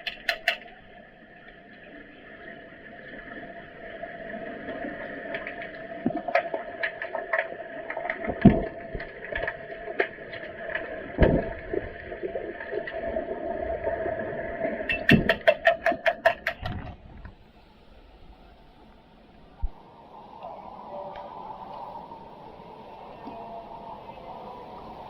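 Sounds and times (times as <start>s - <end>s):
scattered clicks and knocks: 0.0s - 0.7s, 14.9s - 17.0s
steady hum: 16.5s - 25.0s.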